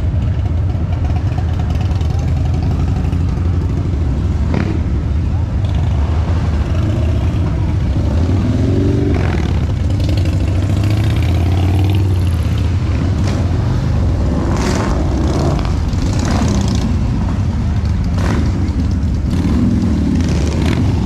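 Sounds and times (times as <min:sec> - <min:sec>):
motorcycle engines rumbling: 0:00.0 - 0:21.0
motorcycle engine revving: 0:05.7 - 0:21.0.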